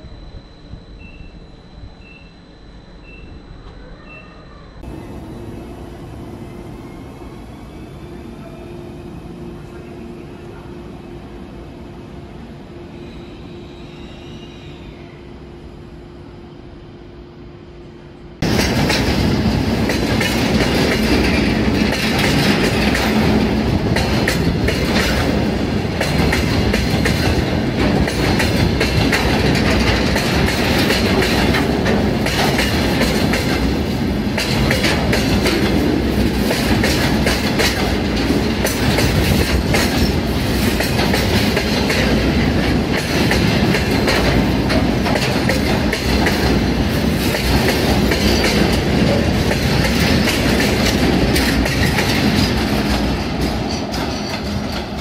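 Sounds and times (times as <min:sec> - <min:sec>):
steady hum: 0:00.0 - 0:07.2
freight train passing: 0:00.0 - 0:55.0
wheels clattering over rail joints: 0:34.4 - 0:55.0.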